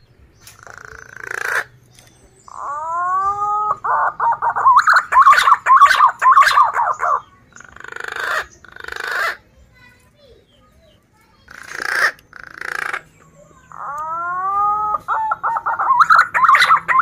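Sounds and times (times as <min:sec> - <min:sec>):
pigeon whistling and warbling: 0:00.6 - 0:09.4, 0:11.6 - 0:17.0.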